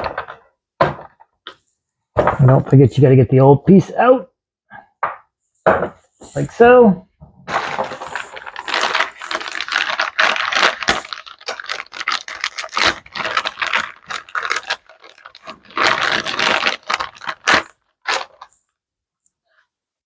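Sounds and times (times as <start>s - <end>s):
plastic and metal parts rattling: 7.5s - 18.5s.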